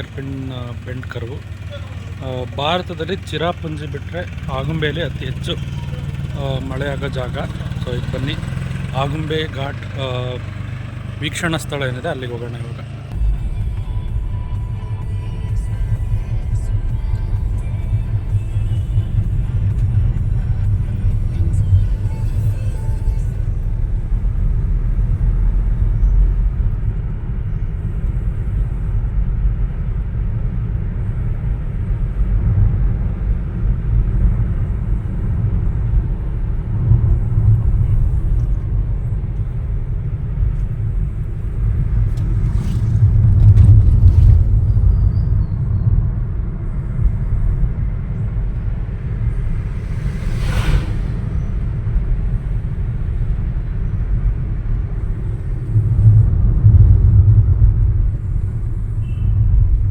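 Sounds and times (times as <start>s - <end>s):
road and engine rumble: 0.0s - 59.9s
brief rushing sound: 48.6s - 53.4s.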